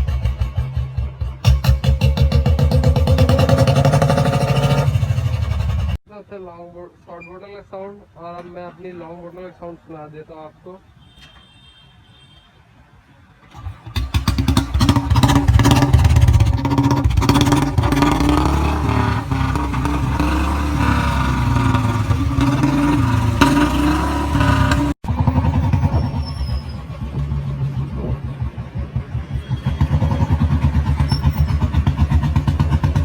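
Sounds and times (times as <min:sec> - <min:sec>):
motorcycle engine revving: 0:00.0 - 0:06.0, 0:13.5 - 0:33.0.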